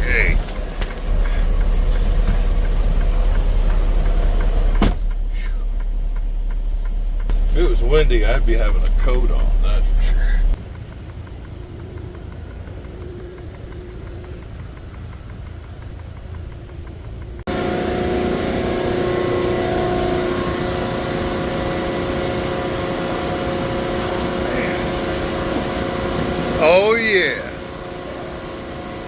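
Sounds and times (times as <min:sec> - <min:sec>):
humming tones: 0:00.0 - 0:29.0
low engine rumble: 0:00.0 - 0:29.0
machinery drone: 0:00.0 - 0:29.0.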